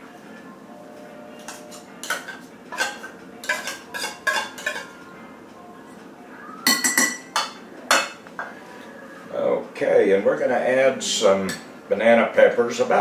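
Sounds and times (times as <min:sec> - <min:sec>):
metal utensil clinking against bowl: 0:01.4 - 0:04.9, 0:06.7 - 0:08.2.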